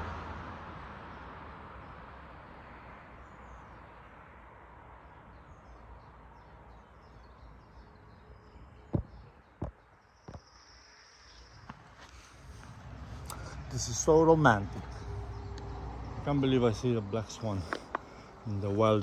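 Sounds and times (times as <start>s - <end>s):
outdoor background noise: 0.0s - 19.0s
small birds chirping: 5.1s - 19.0s.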